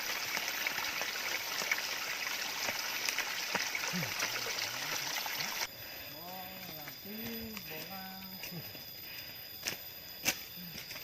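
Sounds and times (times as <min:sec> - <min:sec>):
running water rushing: 0:00.0 - 0:05.7.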